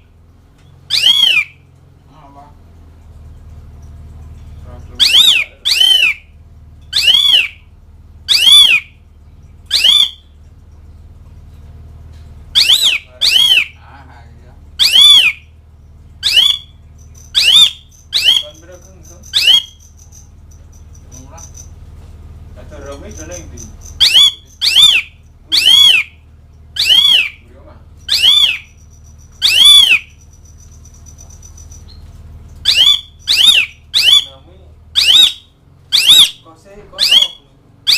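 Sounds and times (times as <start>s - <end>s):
low steady hum: 0.0s - 37.9s
starling mewing calls: 0.9s - 1.6s, 4.9s - 6.3s, 6.9s - 7.7s, 8.3s - 9.0s, 9.7s - 10.3s, 12.6s - 13.8s, 14.8s - 15.5s, 16.2s - 21.7s, 23.1s - 27.4s, 28.0s - 32.0s, 32.6s - 34.4s, 35.0s - 36.4s, 37.0s - 37.9s.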